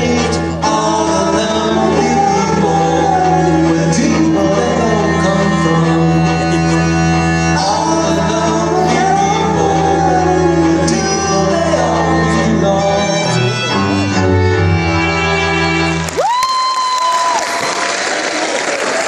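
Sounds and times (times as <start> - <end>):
voices singing: 0.0 - 14.0
gliding melody line: 0.0 - 16.0
sustained string chords: 0.0 - 16.1.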